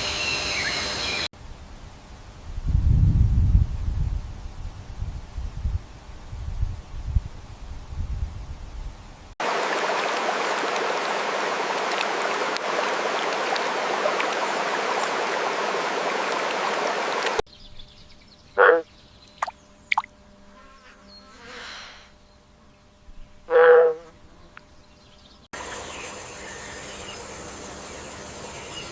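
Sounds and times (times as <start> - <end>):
rushing water: 9.4 - 17.4.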